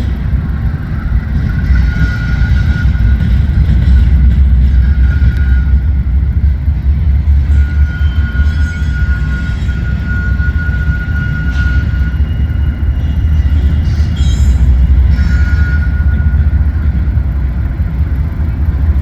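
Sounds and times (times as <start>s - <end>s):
high-pitched squeal: 0.0s - 17.8s
train rumbling past: 0.0s - 19.0s.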